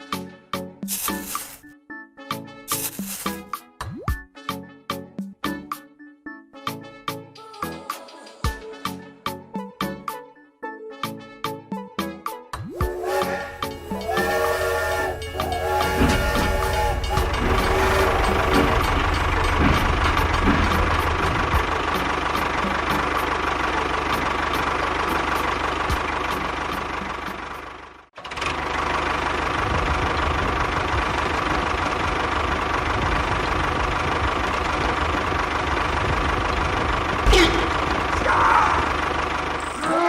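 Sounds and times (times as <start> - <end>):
engine-like running: 12.7 - 40.0.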